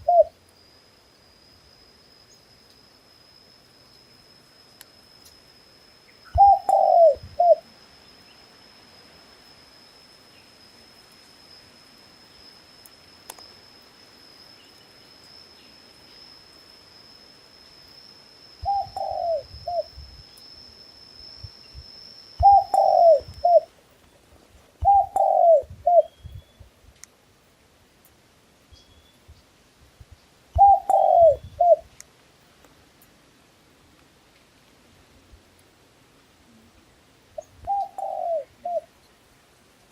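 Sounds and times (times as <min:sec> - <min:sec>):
dove cooing: 0:00.0 - 0:00.3, 0:06.4 - 0:07.6, 0:18.6 - 0:19.9, 0:22.4 - 0:23.7, 0:24.8 - 0:26.2, 0:30.6 - 0:31.9, 0:37.6 - 0:38.9.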